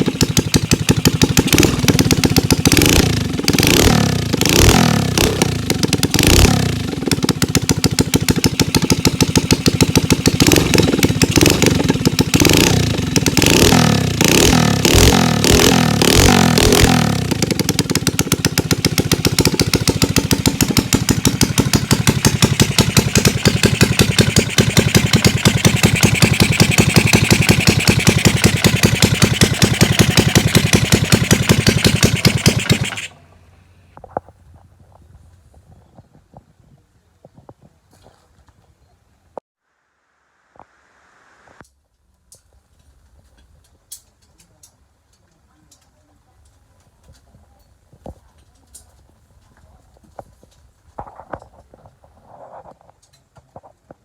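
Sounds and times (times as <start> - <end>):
small motorcycle engine revving: 0.0 - 33.4.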